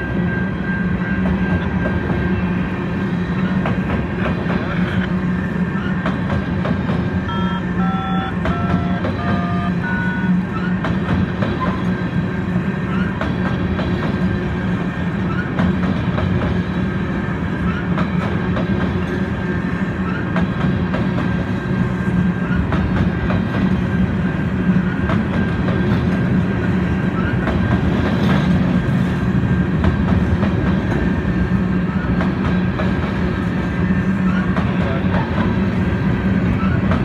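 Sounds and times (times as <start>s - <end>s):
steel wheels rumbling on rail: 0.0s - 37.0s.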